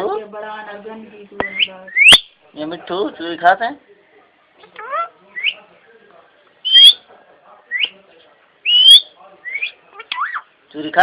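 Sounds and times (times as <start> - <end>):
parrot whistled chirps: 1.5 - 2.3, 6.6 - 7.0, 8.6 - 10.4
parrot shrill calls: 6.6 - 7.0, 8.6 - 10.5.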